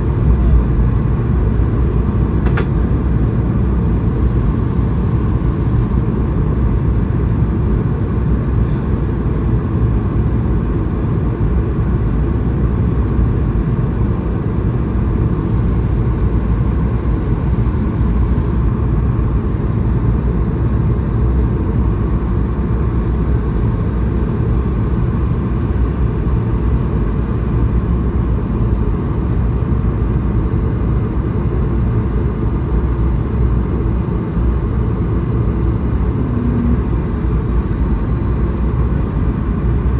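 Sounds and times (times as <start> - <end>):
engine hum: 0.0 - 5.1, 28.5 - 39.9
airflow rush in aircraft cabin: 0.0 - 39.9
faint high steady whine: 13.9 - 39.9.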